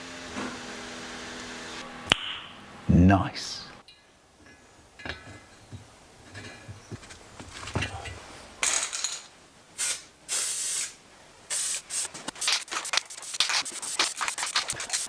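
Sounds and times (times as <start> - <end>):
spray hissing: 9.8 - 15.0.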